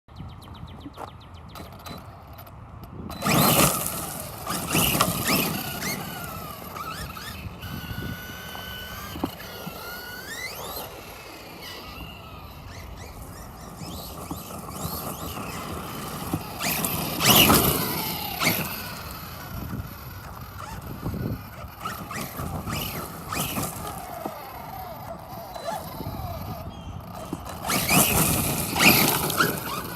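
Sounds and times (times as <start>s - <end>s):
tyres on gravel: 0.4s - 29.9s
electric motor whining: 1.5s - 29.9s.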